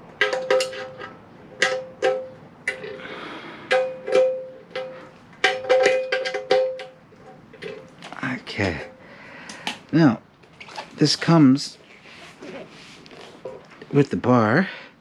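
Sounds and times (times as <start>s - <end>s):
steel parts clanking: 0.2s - 3.0s, 3.7s - 7.9s.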